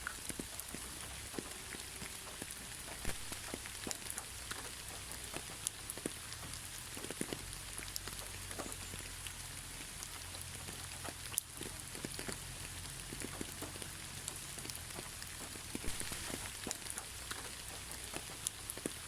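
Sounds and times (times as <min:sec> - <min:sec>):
gentle rain pattering: 0:00.0 - 0:19.0.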